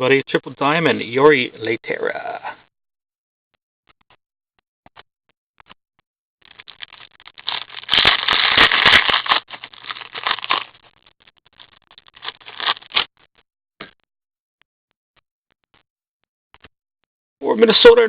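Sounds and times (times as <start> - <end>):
wrapper crinkling and tearing: 6.4 - 13.1.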